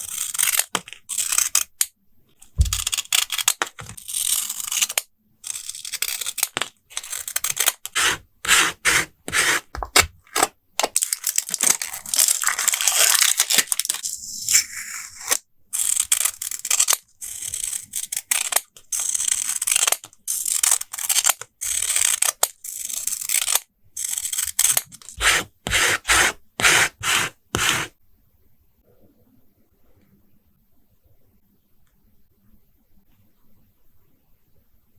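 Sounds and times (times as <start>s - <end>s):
paper and tape rustling: 6.4s - 14.1s, 24.6s - 27.9s.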